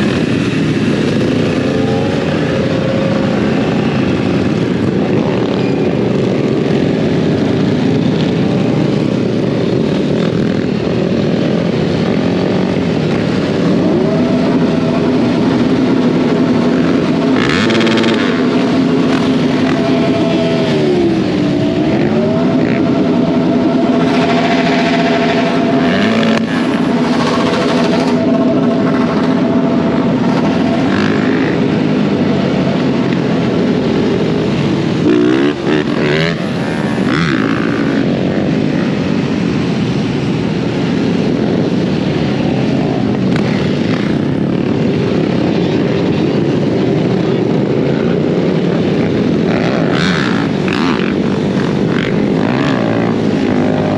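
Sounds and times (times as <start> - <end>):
off-road motorcycle engine: 0.0 - 53.9
rush of wind: 0.0 - 53.9.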